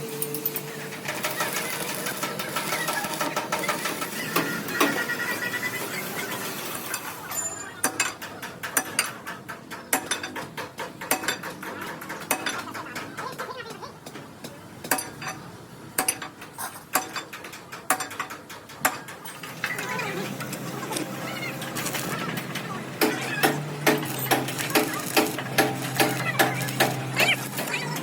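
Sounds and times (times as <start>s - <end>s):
sharp metallic clicks and clanks: 6.8s - 15.4s, 16.0s - 28.0s.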